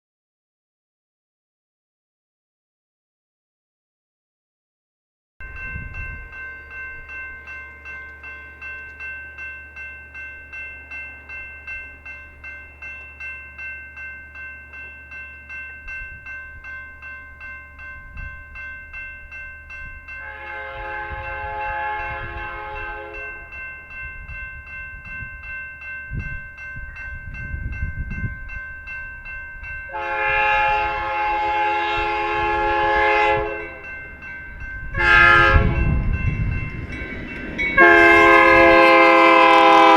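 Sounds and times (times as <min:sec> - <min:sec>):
freight train rumble: 0:05.4 - 0:39.9
railroad crossing bell ringing: 0:05.4 - 0:39.9
locomotive air horn blasts: 0:20.2 - 0:23.5, 0:29.9 - 0:33.9, 0:34.9 - 0:36.1, 0:37.8 - 0:39.9.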